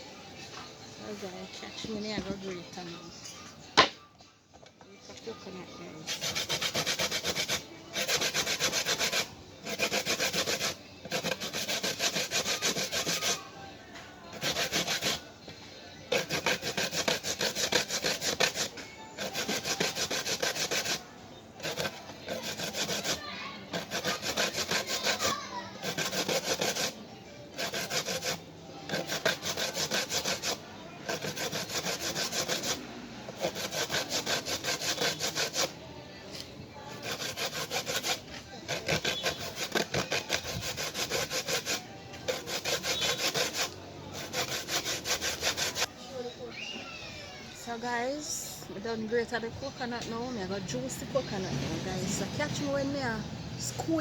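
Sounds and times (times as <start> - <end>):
coconut grating rasps: 6.0 - 13.4, 14.3 - 15.3, 16.1 - 21.0, 21.6 - 35.8, 36.9 - 45.9.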